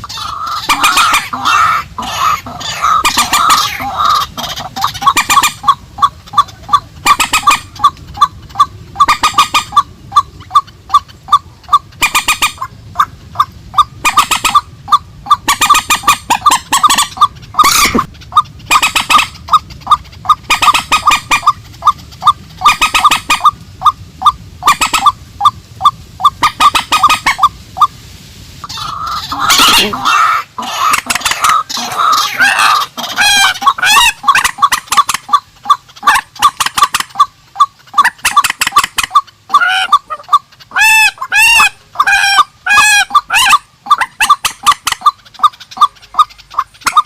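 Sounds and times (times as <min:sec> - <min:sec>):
harsh screeching bird calls: 0:00.0 - 0:05.6, 0:28.6 - 0:34.7.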